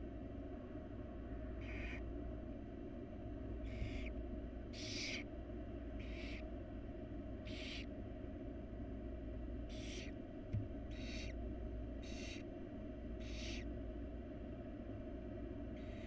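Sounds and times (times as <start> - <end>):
steady low hum: 0.0 - 16.0
owl nestlings hissing: 1.6 - 2.0, 3.6 - 4.1, 4.8 - 5.3, 6.0 - 6.5, 7.5 - 7.9, 9.7 - 10.2, 10.8 - 11.4, 12.0 - 12.5, 13.2 - 13.7.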